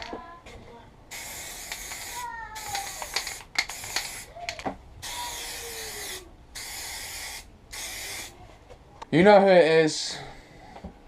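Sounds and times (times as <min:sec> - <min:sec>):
spray can hissing: 0:01.1 - 0:04.3, 0:05.0 - 0:08.4.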